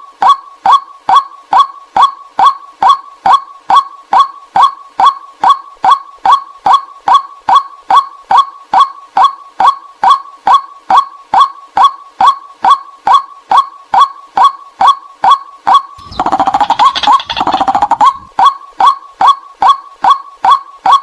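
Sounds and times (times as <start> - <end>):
waterhen call: 15.7 - 19.0.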